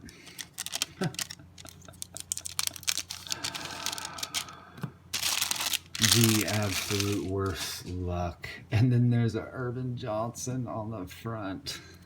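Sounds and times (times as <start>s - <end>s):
trading cards clicking: 0.0s - 4.5s
papery rustle of cards: 0.0s - 8.0s.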